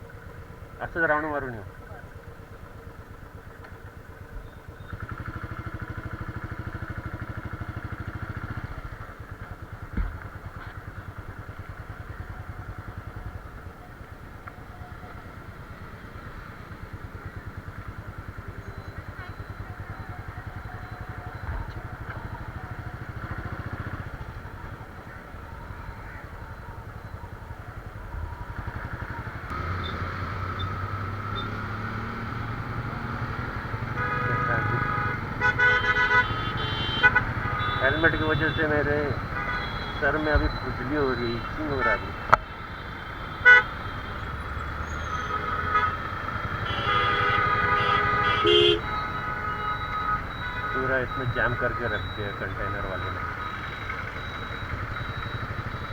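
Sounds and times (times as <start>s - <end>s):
motorcycle engine running: 0.0s - 55.9s
road traffic: 0.0s - 55.9s
vehicle horns honking: 10.3s - 12.3s, 17.8s - 26.8s, 28.5s - 55.9s.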